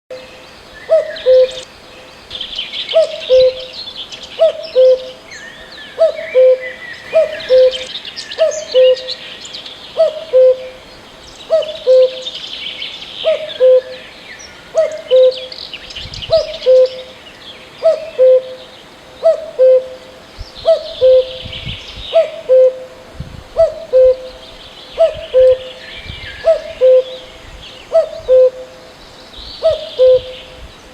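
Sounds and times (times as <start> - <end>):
bird hooting: 0.9 - 1.6, 2.9 - 3.8, 4.4 - 5.2, 6.0 - 9.2, 10.0 - 10.8, 11.5 - 12.4, 13.2 - 14.0, 14.7 - 15.6, 16.3 - 17.2, 17.8 - 18.6, 19.2 - 20.0, 20.6 - 21.4, 22.1 - 22.9, 23.6 - 24.4, 25.0 - 25.8, 26.4 - 28.7, 29.6 - 30.5.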